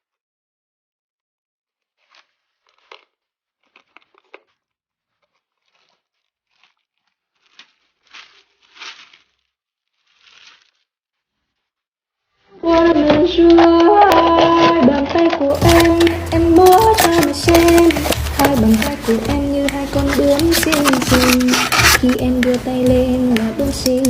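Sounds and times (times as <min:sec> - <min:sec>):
packaging tearing and crinkling: 0:01.8 - 0:11.7, 0:15.6 - 0:24.0.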